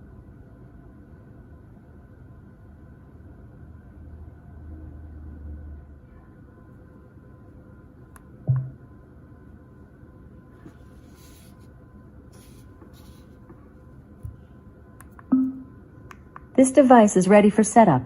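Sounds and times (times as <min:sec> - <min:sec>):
faint steady hum: 0:00.0 - 0:18.0
brief low tone: 0:08.5 - 0:08.8, 0:15.3 - 0:15.8
short low thud: 0:08.5 - 0:08.8.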